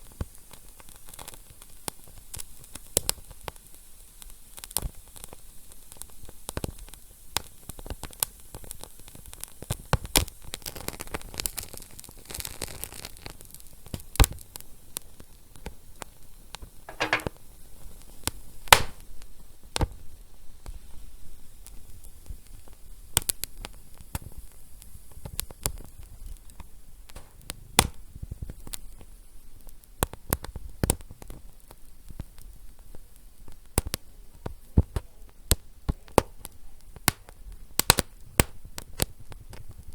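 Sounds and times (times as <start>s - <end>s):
wood fire crackling: 18.0s - 19.4s, 22.0s - 39.9s.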